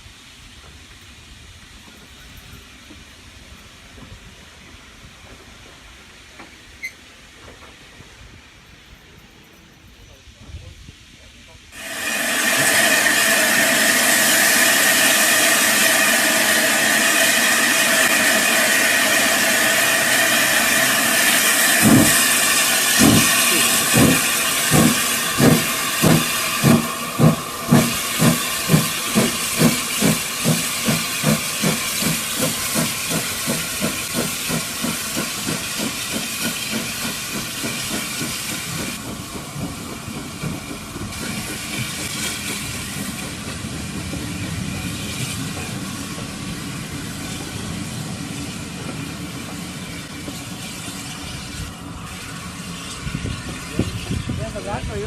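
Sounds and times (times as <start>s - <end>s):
steam locomotive hissing: 0.0s - 55.0s
locomotive exhaust chuffs: 11.8s - 50.6s.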